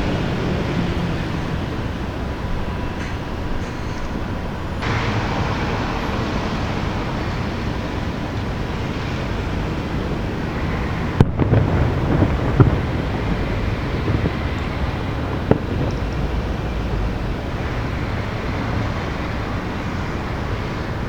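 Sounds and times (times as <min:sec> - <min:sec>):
steady noisy background: 0:00.0 - 0:21.0
distant firework booms: 0:04.8 - 0:17.9
firework sharp crack: 0:04.8 - 0:18.0.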